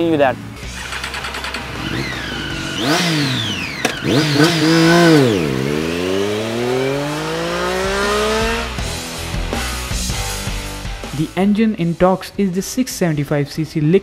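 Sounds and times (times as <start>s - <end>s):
motorcycle engine revving and accelerating: 0.6s - 9.9s.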